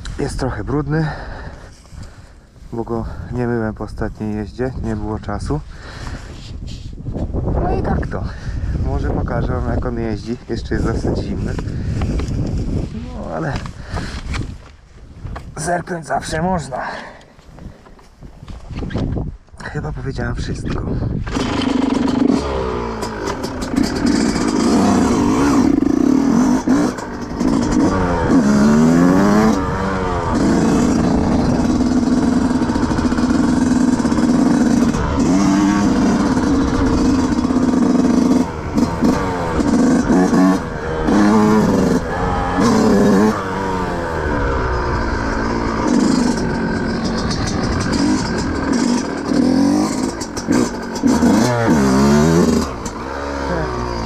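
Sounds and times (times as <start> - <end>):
two-stroke motorcycle engine revving: 21.2 - 54.0.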